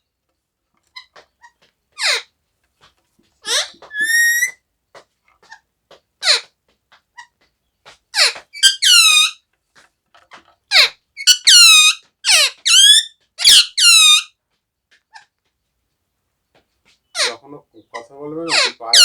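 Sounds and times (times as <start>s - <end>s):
parrot calling shrilly: 2.0s - 2.2s, 3.4s - 4.6s, 8.2s - 9.4s, 10.7s - 14.3s, 17.1s - 19.0s.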